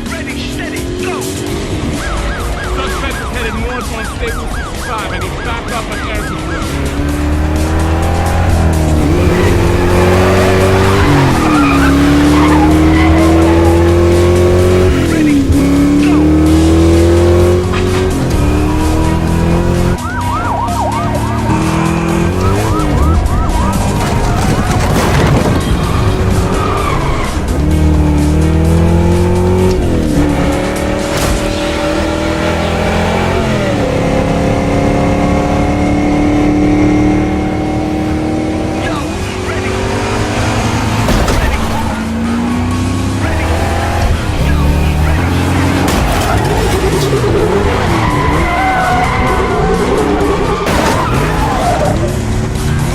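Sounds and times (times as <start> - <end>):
car engine revving: 0.0 - 52.9
music: 0.0 - 52.9
tyres squealing and skidding: 0.6 - 34.4, 36.6 - 52.9
tyre squeal: 10.4 - 13.9.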